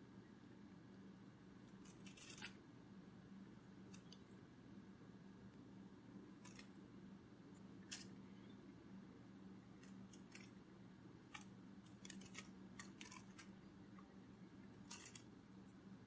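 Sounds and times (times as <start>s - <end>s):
low steady hum: 0.0s - 16.0s
faint small clicks: 3.9s - 4.3s.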